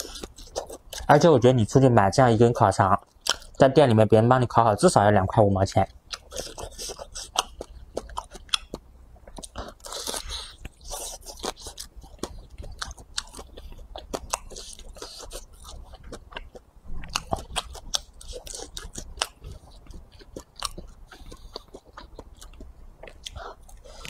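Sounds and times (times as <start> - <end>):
person chewing with mouth smacks: 0.0 - 1.1, 6.1 - 24.0.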